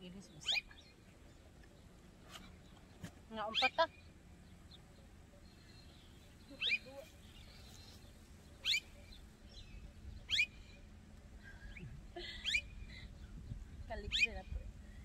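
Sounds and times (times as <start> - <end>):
faint low background noise: 0.0 - 15.0
bird calls sweeping upward: 4.7 - 11.0, 11.7 - 13.4.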